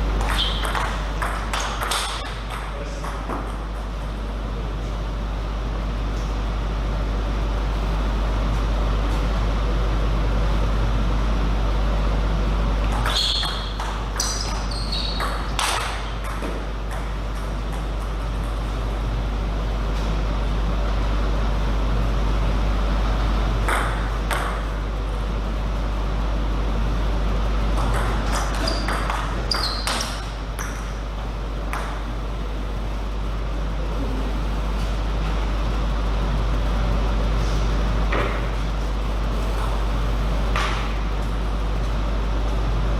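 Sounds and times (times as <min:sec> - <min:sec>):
steady low hum: 0:00.0 - 0:42.9
ping-pong ball clicks: 0:00.2 - 0:03.9, 0:12.8 - 0:18.6, 0:27.8 - 0:30.9, 0:31.7 - 0:32.0.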